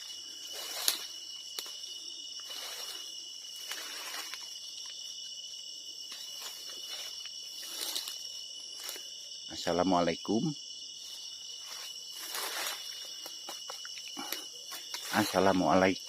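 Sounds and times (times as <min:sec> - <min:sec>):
soft rustling: 0:00.0 - 0:05.0, 0:06.1 - 0:09.1, 0:11.0 - 0:13.8
crickets and insects chirping: 0:00.0 - 0:16.0.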